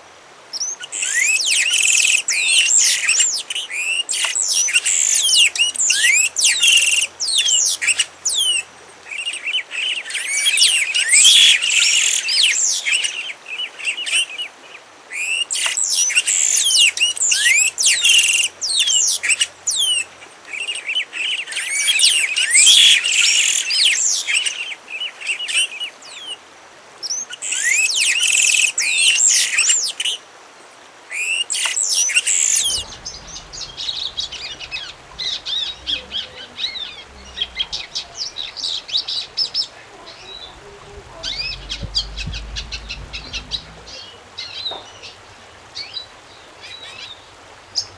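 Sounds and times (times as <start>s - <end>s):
songbird singing: 31.9s - 47.9s.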